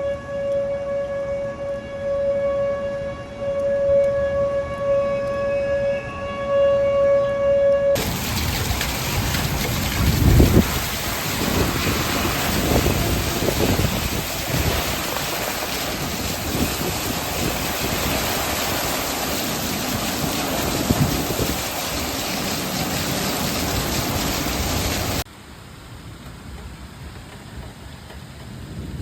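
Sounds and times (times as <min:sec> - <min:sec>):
wind gusts buffeting microphone: 0:08.0 - 0:25.2
rain hiss: 0:08.0 - 0:29.0
wind and rain rushing: 0:08.0 - 0:29.0.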